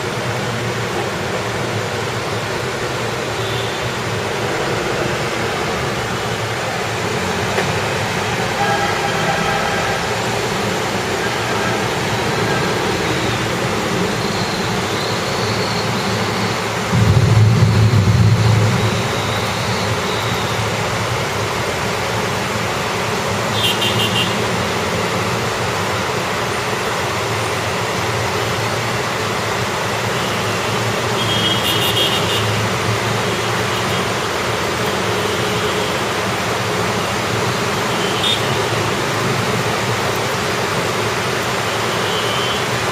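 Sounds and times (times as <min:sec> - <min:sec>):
tyres on wet road: 0:00.0 - 0:42.9
vehicle engines: 0:00.0 - 0:42.9
rain hissing: 0:00.1 - 0:42.9
loud low rumble: 0:16.9 - 0:21.5.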